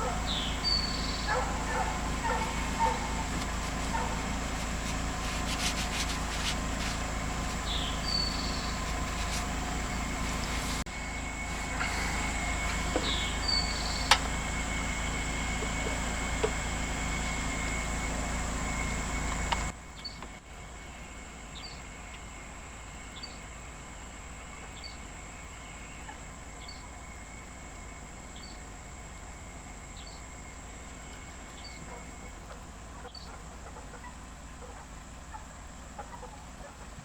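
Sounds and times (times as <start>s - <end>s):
low engine rumble: 0.0s - 37.0s
short high insect chirp: 0.1s - 3.3s, 5.2s - 16.4s, 21.6s - 32.3s.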